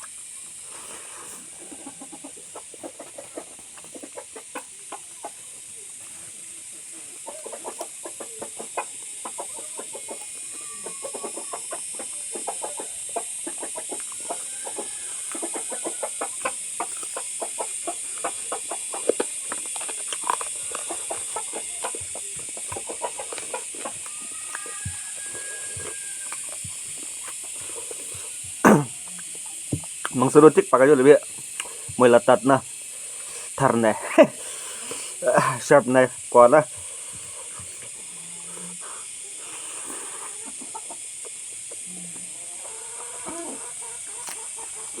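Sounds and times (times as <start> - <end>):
wet chewing and mouth clicks: 0.0 - 6.2, 11.1 - 30.4, 31.2 - 32.0, 44.0 - 45.0
steady hiss: 0.0 - 45.0.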